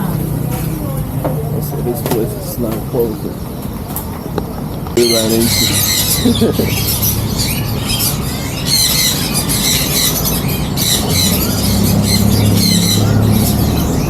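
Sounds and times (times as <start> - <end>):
small animals squeaking and chirping: 5.0 - 14.0.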